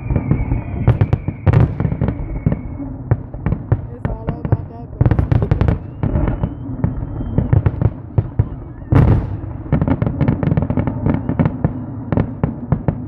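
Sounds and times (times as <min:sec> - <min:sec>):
firework whistle: 0:00.0 - 0:03.0, 0:05.3 - 0:12.7
fireworks bangs and crackles: 0:00.0 - 0:13.0.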